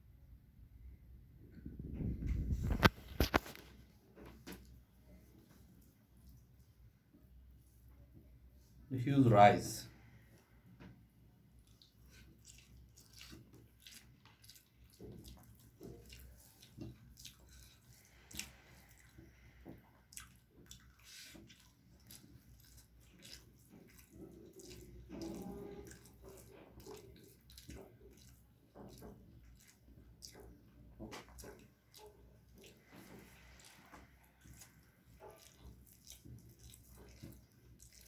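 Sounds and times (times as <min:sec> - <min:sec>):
person eating wet squishing: 0:11.6 - 0:38.0.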